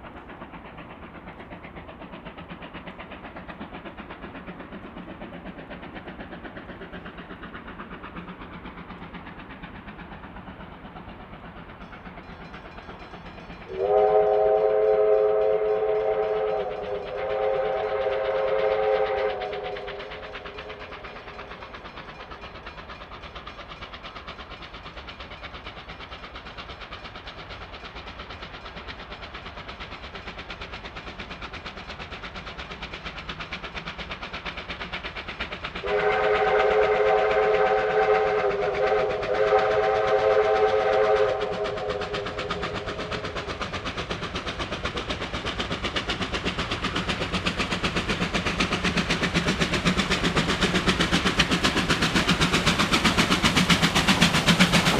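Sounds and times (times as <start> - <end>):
steam locomotive running: 0.0 - 54.9
steam whistle chord: 13.6 - 20.8, 35.8 - 42.8.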